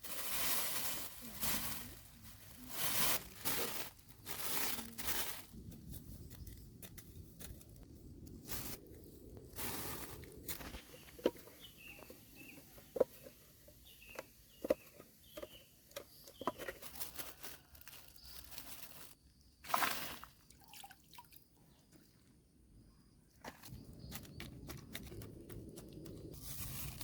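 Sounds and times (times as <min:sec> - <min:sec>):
rustle: 0:25.8 - 0:27.0.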